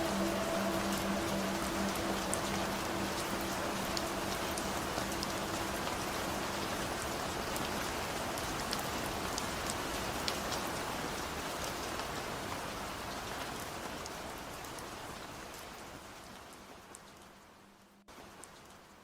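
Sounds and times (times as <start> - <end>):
faint held musical tones: 0.0 - 8.1
rain falling: 0.0 - 19.0.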